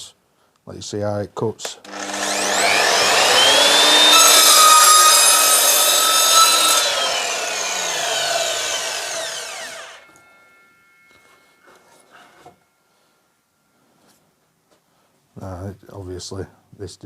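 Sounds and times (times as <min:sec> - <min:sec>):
mitre saw whining: 0:01.8 - 0:13.1
saw cutting through wooden board: 0:01.9 - 0:10.1.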